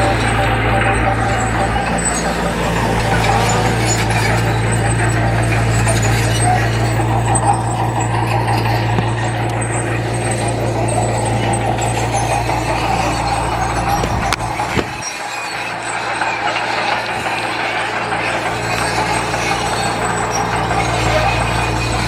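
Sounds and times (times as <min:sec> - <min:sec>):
mechanical noise: 0:00.0 - 0:19.4
diesel engine running: 0:00.0 - 0:22.0.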